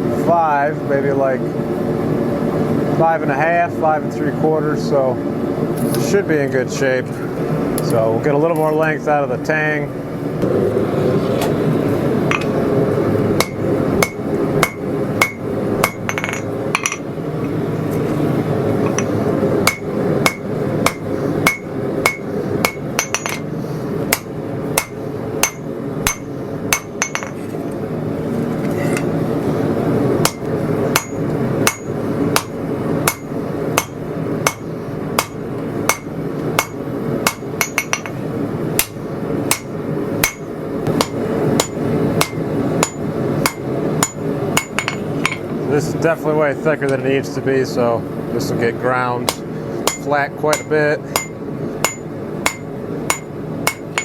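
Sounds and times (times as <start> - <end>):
steady hum: 0.0 - 54.0
hammer striking hot metal on anvil: 12.3 - 12.6, 13.4 - 17.1, 18.9 - 23.5, 24.1 - 27.4, 30.2 - 38.2, 38.8 - 45.4, 49.2 - 54.0.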